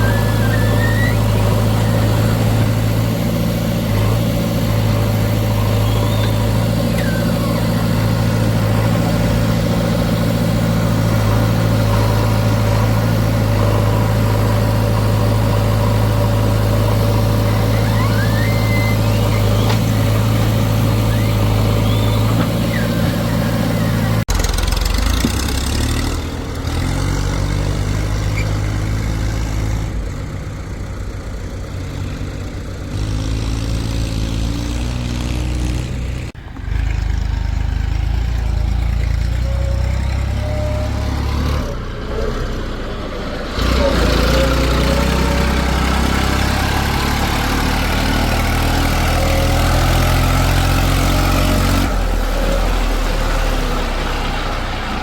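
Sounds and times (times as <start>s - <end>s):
engine revving up and down: 0.0s - 30.0s, 32.9s - 38.5s, 39.6s - 55.0s
diesel machinery engine running: 0.0s - 55.0s.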